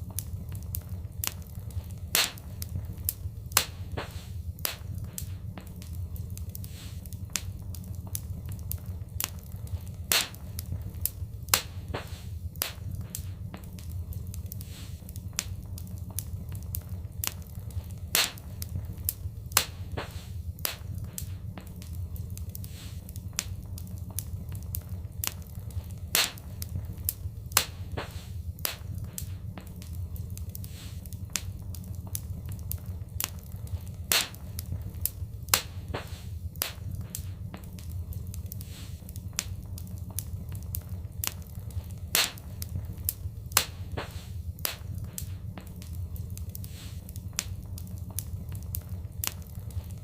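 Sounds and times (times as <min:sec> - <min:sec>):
fire crackling and popping: 0:00.0 - 0:50.0
low rumble: 0:00.0 - 0:50.0.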